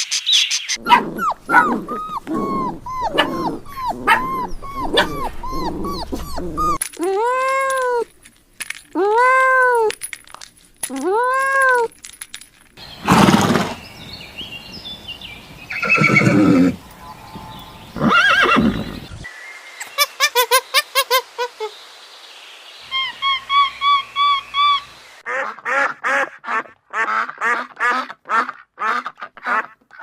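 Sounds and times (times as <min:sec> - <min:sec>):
farm animal calls: 0:00.7 - 0:06.8, 0:15.7 - 0:19.1.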